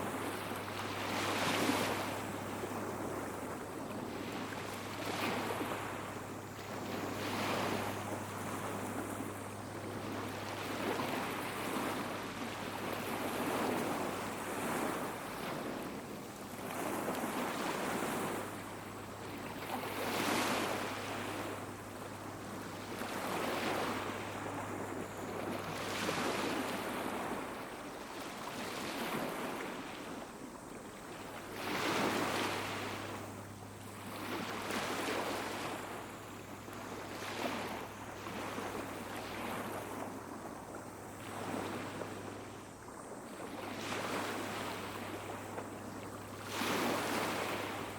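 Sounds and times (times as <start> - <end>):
steady low hum: 0.0 - 28.6, 29.4 - 47.9
small waves washing on sand: 0.0 - 47.9.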